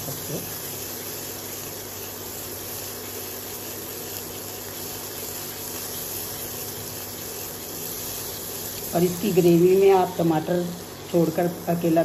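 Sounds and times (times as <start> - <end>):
paste sizzling in hot oil: 0.0 - 12.0.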